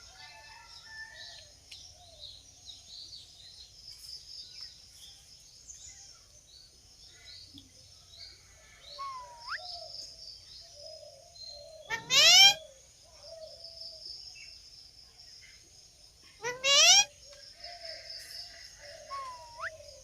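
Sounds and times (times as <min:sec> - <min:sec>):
birds chirping: 0:01.8 - 0:14.7, 0:16.3 - 0:20.0
bird whistle sweeping upward: 0:09.0 - 0:09.7.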